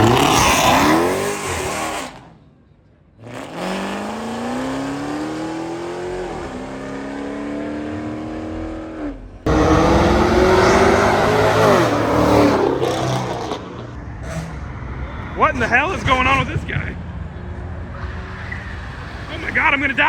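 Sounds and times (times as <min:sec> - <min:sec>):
car engine revving hard: 0:00.0 - 0:02.4, 0:03.2 - 0:14.6.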